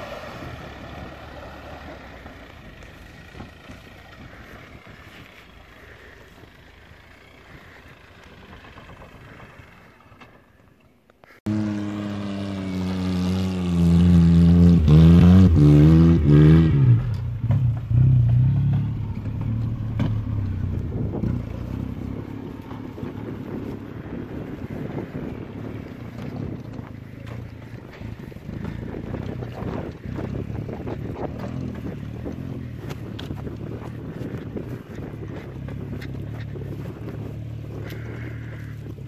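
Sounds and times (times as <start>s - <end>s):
distant car: 0.0s - 39.0s
car engine revving hard: 11.5s - 18.9s.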